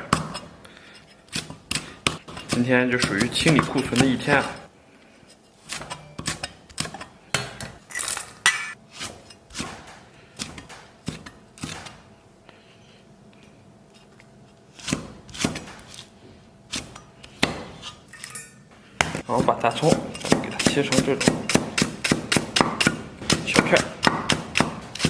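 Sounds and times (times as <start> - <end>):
dishes and utensils clinking: 7.4 - 8.8, 18.1 - 18.7.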